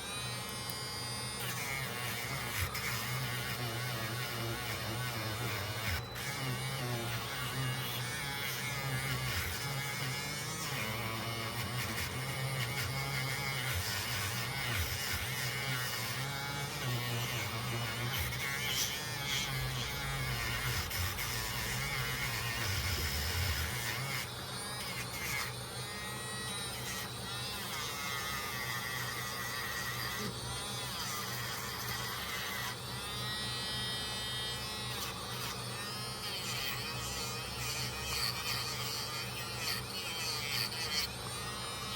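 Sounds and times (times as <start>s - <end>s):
small electric motor buzzing: 0.0s - 41.9s.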